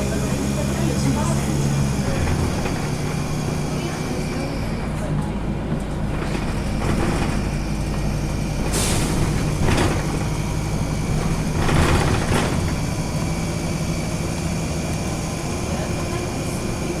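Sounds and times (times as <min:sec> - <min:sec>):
bus diesel engine hum: 0:00.0 - 0:17.0
air brake hissing bursts: 0:08.6 - 0:09.5.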